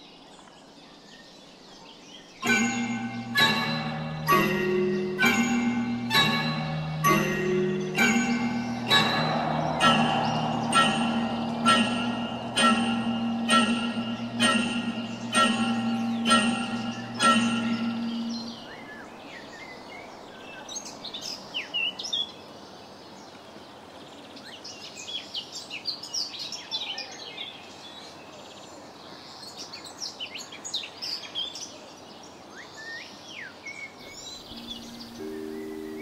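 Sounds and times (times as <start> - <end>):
birds chirping: 2.4 - 19.1
steady background hiss: 34.1 - 36.0.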